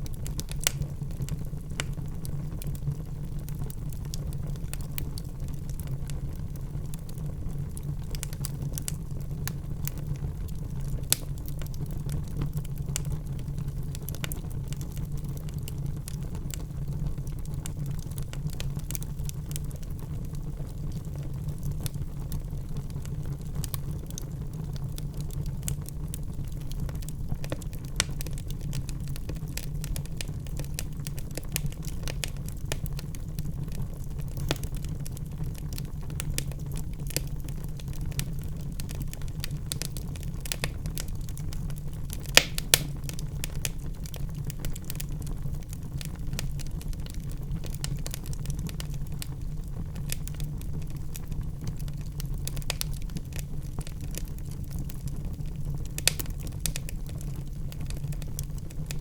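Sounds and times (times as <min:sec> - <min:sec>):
loud fire pops: 0:00.0 - 0:02.8, 0:26.4 - 0:49.2, 0:51.6 - 0:59.0
logs crackling in a fireplace: 0:00.0 - 0:59.0.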